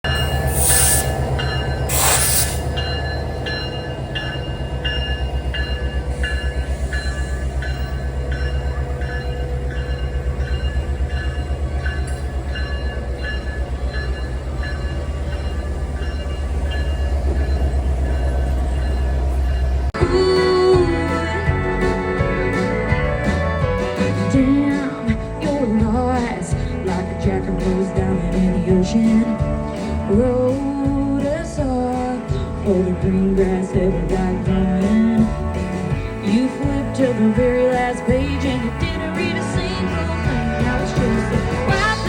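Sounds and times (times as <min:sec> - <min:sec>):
steady ringing tones: 0:00.0 - 0:20.0
diesel locomotive rumbling: 0:00.0 - 0:42.0
short hissing bursts: 0:00.4 - 0:01.2, 0:01.9 - 0:02.7
country music: 0:19.9 - 0:42.0.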